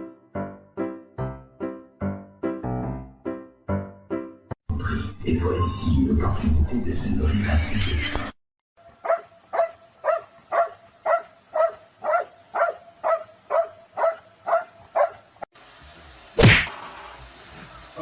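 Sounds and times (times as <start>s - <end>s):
dog barking: 9.0s - 15.3s
loud sudden thud: 16.4s - 17.0s.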